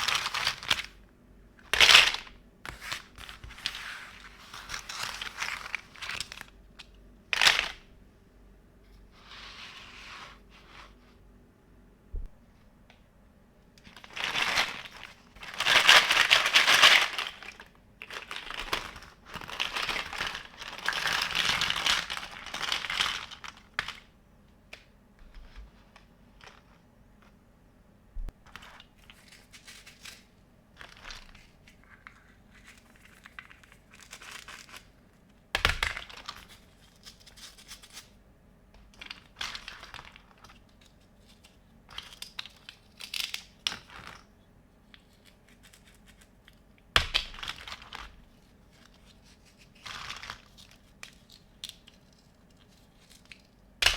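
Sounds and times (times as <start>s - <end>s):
plastic crinkling and tearing: 13.8s - 24.1s.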